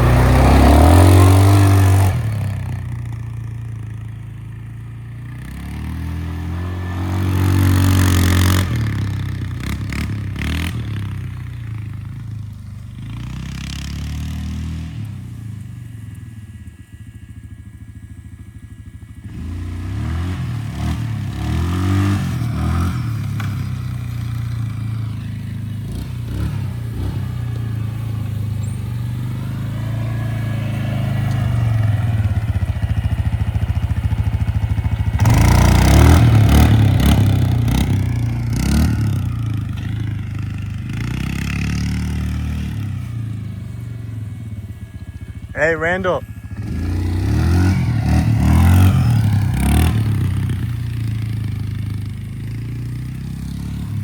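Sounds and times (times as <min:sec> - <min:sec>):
small motorbike engine revving: 0:00.0 - 0:54.0.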